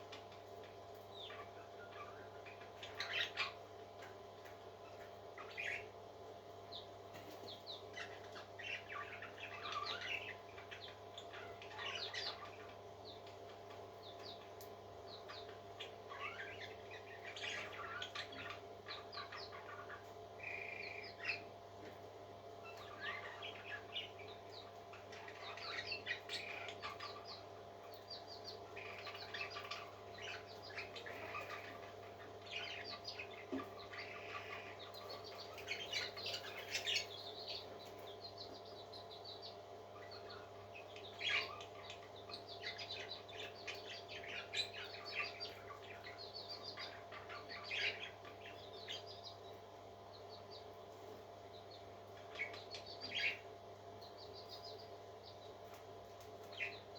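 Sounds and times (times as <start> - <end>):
birds chirping: 0.0 - 56.9
steady low hum: 0.0 - 56.9.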